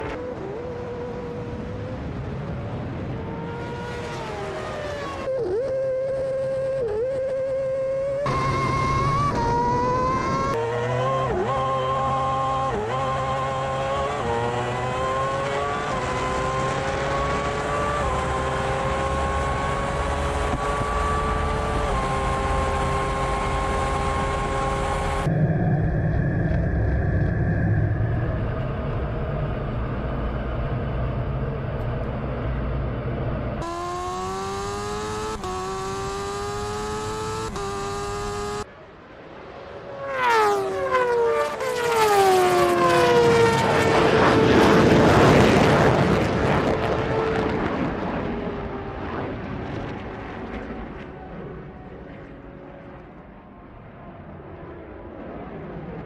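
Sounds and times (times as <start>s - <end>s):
high-revving engine upshifting: 0.0s - 38.7s, 39.8s - 51.3s
low rumble: 25.2s - 33.6s.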